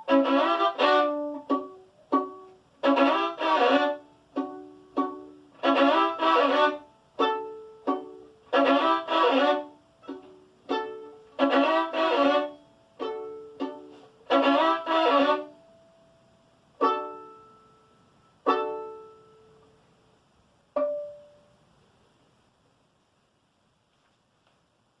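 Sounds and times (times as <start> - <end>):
violin playing: 0.0 - 15.7, 16.8 - 19.5.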